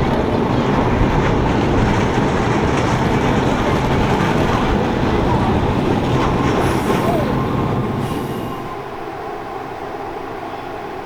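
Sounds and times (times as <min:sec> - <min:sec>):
train wheels rumbling on rails: 0:00.0 - 0:08.8.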